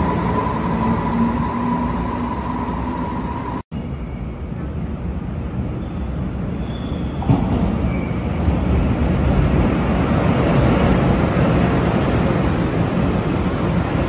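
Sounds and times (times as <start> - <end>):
train wheels rumbling on rail: 4.2 - 14.0.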